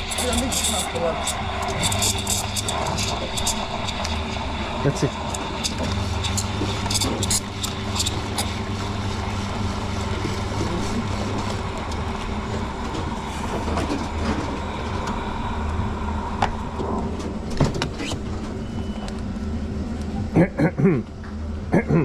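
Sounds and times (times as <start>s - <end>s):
espresso machine humming: 0.0s - 16.8s.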